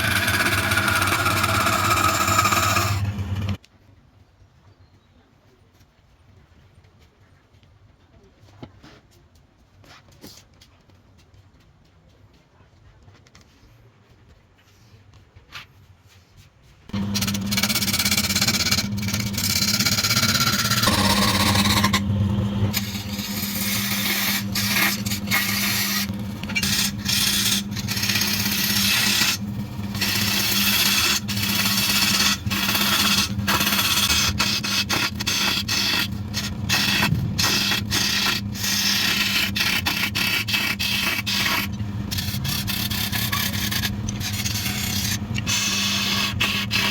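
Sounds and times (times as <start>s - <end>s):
tool scraping spinning wood: 0.0s - 3.6s, 16.9s - 46.9s
wood lathe humming: 0.0s - 3.6s, 16.9s - 46.9s.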